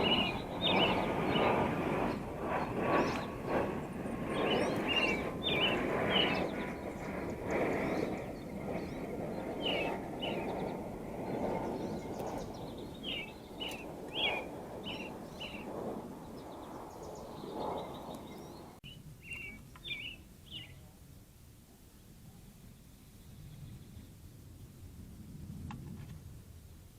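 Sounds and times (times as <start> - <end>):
songbird chirping: 0.0 - 1.6, 4.3 - 7.2, 8.9 - 20.8.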